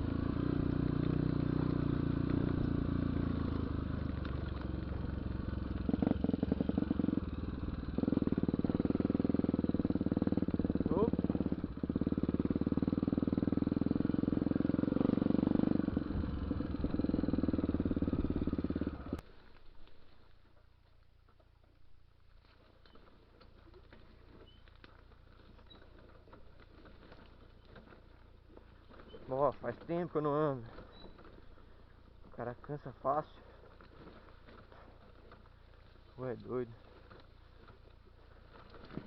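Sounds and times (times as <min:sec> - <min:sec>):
motorcycle engine running: 0:00.0 - 0:19.2, 0:22.4 - 0:39.0.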